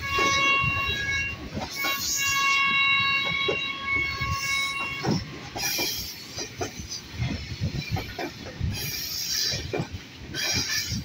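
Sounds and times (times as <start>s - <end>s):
locomotive horn: 0.0s - 5.6s
train wheels rumbling and knocking: 0.0s - 11.0s.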